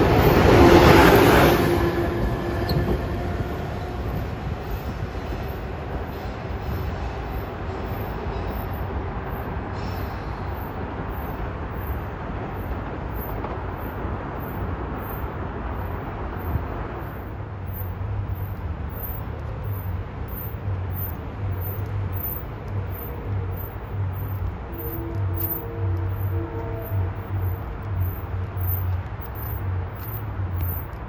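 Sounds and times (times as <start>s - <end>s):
train rumbling on rails: 0.0s - 31.0s.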